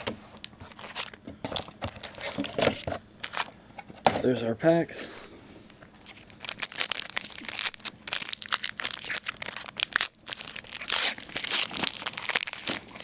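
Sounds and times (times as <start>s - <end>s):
foil wrapper crinkling and tearing: 0.4s - 3.5s, 6.0s - 13.0s.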